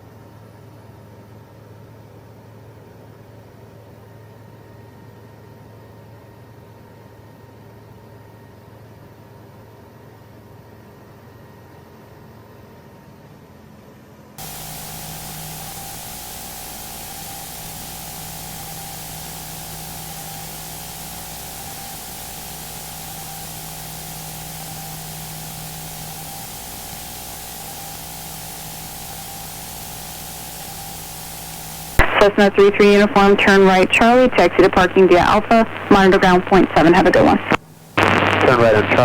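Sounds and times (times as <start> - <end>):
faint hum: 14.4 - 39.0
radio static hiss: 14.4 - 39.0.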